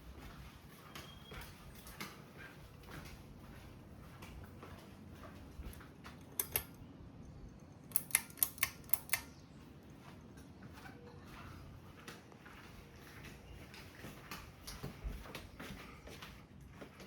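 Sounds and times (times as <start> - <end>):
ceiling fan humming: 0.0 - 17.0
sharp clicks: 6.2 - 6.8, 7.8 - 9.4.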